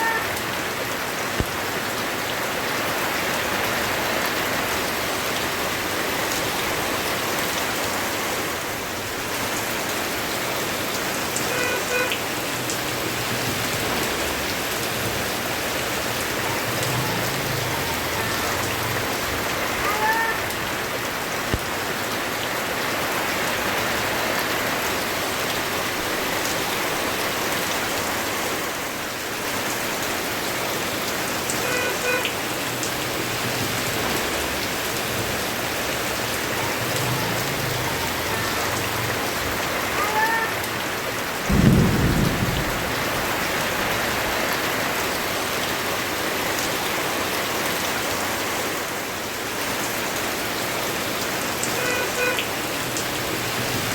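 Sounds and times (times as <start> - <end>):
heavy rain falling: 0.0 - 53.9
low rumble of thunder: 41.4 - 44.2
loud thunder clap: 41.5 - 43.4.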